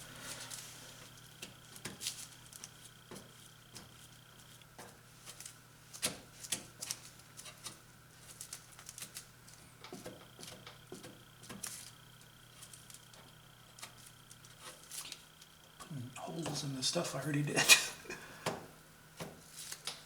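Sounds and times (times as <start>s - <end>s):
steady low hum: 9.2s - 19.8s.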